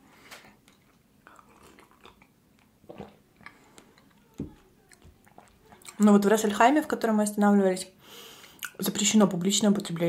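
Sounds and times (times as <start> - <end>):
chewing with mouth closed: 0.6 - 4.3, 4.9 - 6.0
soft mouth smacks and clicks: 8.4 - 8.8.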